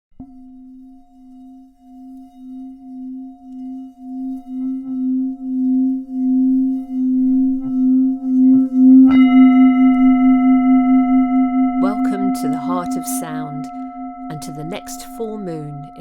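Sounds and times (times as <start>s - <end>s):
singing bowl humming: 0.2s - 16.0s.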